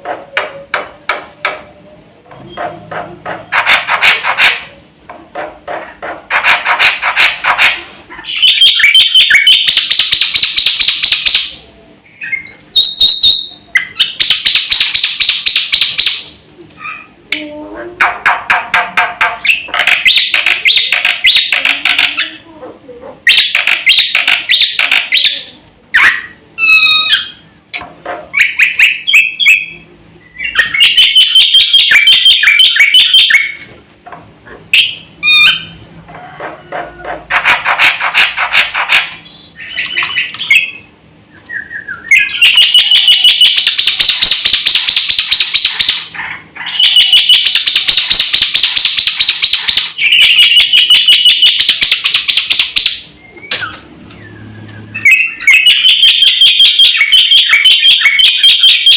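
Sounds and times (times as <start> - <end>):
starling singing: 8.2 - 17.2, 18.0 - 22.4, 23.3 - 27.5, 28.4 - 33.6, 36.7 - 58.9.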